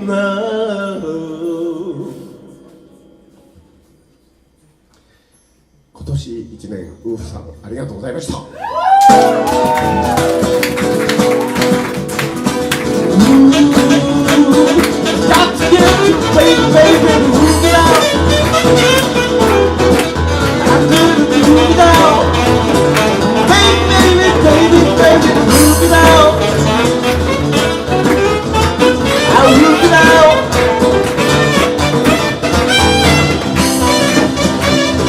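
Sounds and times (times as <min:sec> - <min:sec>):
live band playing: 0:08.6 - 0:35.0
lead guitar: 0:09.1 - 0:35.0.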